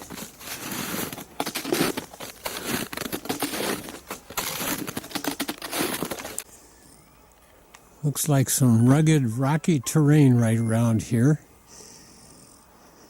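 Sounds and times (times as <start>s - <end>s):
footsteps crunching on a trail: 0.0s - 6.5s.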